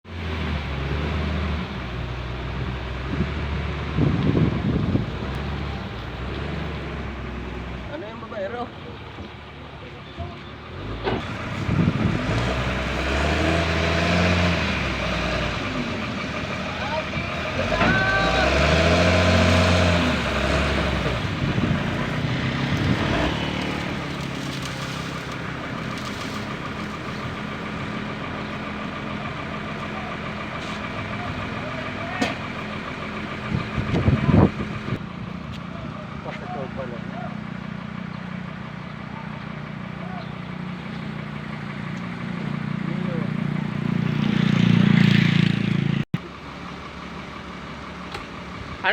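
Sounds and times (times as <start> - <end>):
heavy machine engine running: 0.1 - 48.9
wind on microphone: 3.1 - 5.3.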